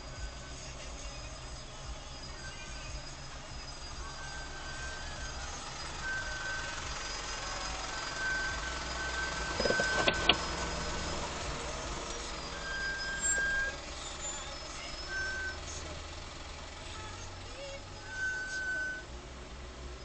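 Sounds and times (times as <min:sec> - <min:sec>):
high beeping tone: 0:00.0 - 0:15.8, 0:17.8 - 0:19.1
car engine idling: 0:00.0 - 0:20.0
sharp clicks: 0:09.5 - 0:10.7.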